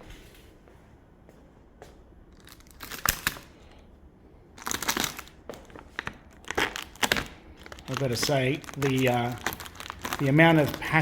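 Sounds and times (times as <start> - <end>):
plastic wrap crinkling: 2.4 - 3.8, 4.6 - 11.0.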